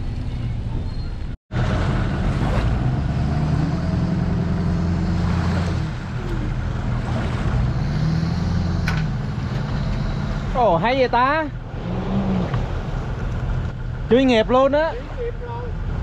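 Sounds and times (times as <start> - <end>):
engine idling: 4.3 - 7.8.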